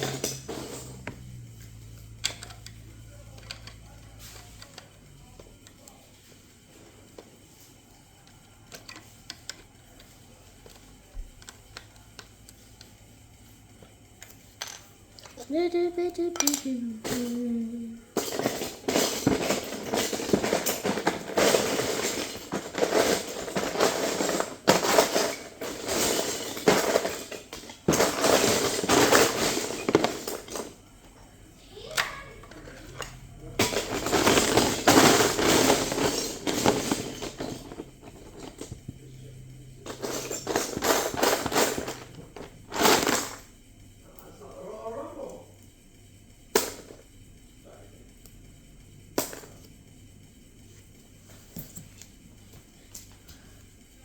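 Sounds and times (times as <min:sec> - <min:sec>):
plastic bricks clattering: 0:18.3 - 0:30.8, 0:32.5 - 0:39.0, 0:39.8 - 0:43.5.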